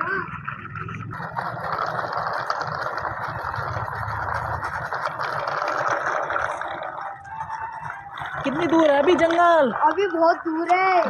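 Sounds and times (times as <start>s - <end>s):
toy vehicles rolling and rattling: 0.0s - 11.0s.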